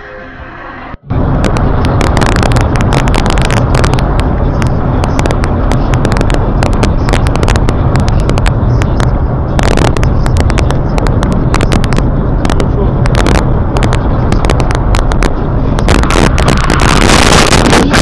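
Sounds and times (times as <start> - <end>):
distorted moving car noise: 0.0 - 18.0
sharp crackles: 1.1 - 18.0.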